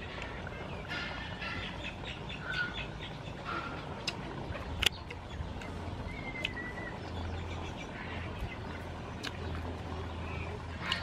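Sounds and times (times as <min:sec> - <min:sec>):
bird chirps: 0:04.7 - 0:11.0.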